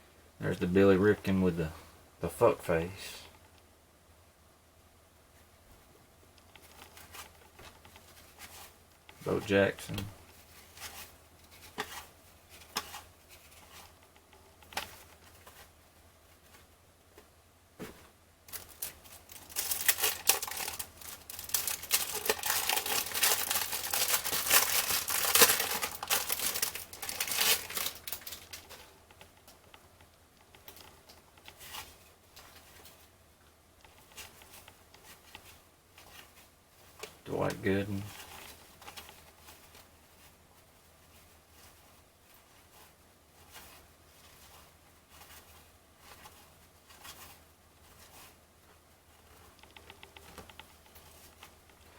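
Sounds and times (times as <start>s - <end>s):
cards being handled: 17.8s - 29.3s
cellophane wrapper tearing and crinkling: 18.5s - 28.8s.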